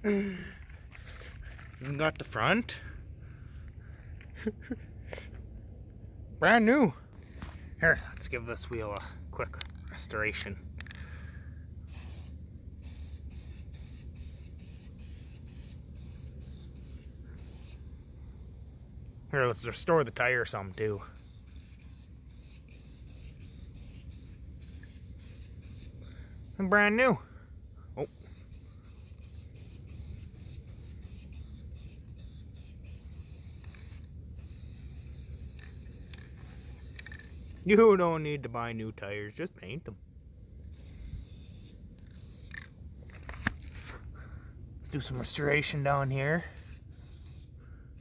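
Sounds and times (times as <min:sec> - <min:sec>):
spray paint can hissing: 0:11.8 - 0:18.4, 0:20.6 - 0:27.0, 0:28.0 - 0:37.7, 0:40.6 - 0:44.1, 0:44.9 - 0:48.0.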